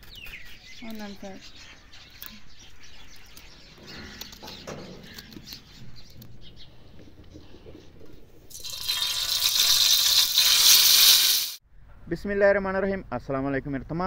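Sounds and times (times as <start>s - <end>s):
birds chirping: 0.0s - 8.6s
hot oil sizzling: 8.5s - 11.6s.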